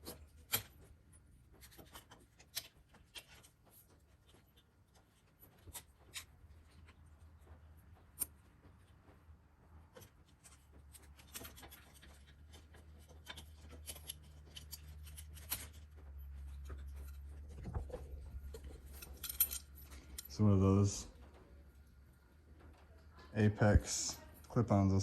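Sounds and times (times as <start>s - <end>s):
low steady hum: 0.0s - 25.0s
rubbing and scraping: 9.9s - 20.2s.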